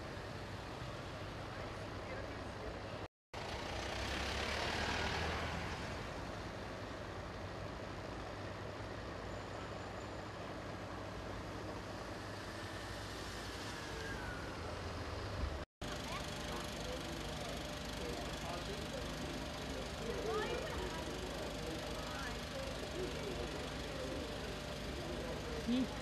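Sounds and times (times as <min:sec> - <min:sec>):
vehicle engine idling: 0:13.8 - 0:26.0
faint voices: 0:15.8 - 0:26.0.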